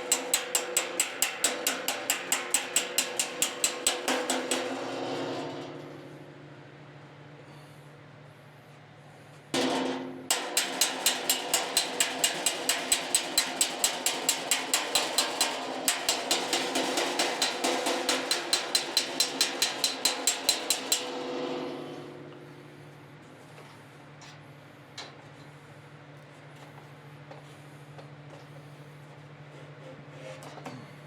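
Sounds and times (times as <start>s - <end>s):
hammer striking sheet steel: 0.0s - 6.6s, 9.6s - 23.0s.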